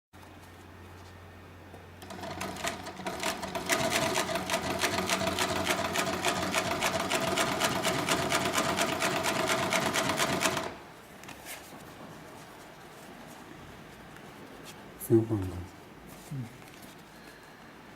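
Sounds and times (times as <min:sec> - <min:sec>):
sewing machine stitching: 0:02.0 - 0:10.8.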